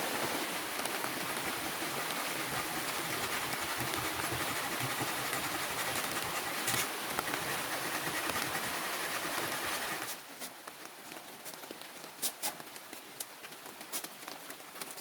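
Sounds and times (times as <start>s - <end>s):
steady rain hiss: 0.0s - 14.6s.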